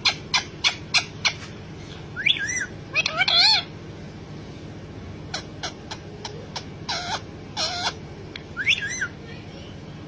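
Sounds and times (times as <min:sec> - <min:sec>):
parrot calls: 0:00.0 - 0:01.5, 0:02.2 - 0:03.7, 0:05.3 - 0:09.2.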